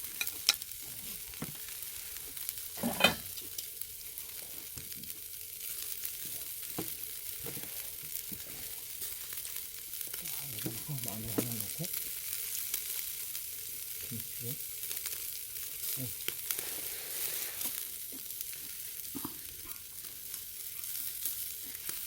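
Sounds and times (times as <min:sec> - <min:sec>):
meat sizzling over charcoal: 0:00.0 - 0:22.0
small crackles and clicks: 0:00.1 - 0:22.0.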